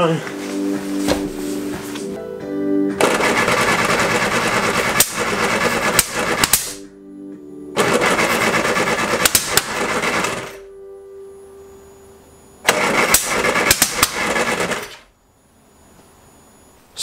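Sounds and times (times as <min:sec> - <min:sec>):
engine cranking on starter: 0:03.0 - 0:06.8, 0:07.8 - 0:10.6, 0:12.6 - 0:15.0.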